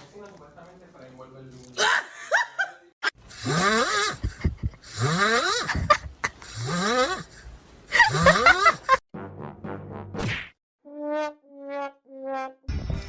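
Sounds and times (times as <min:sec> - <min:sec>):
loud rasping snoring: 0:03.3 - 0:07.4, 0:08.0 - 0:09.0.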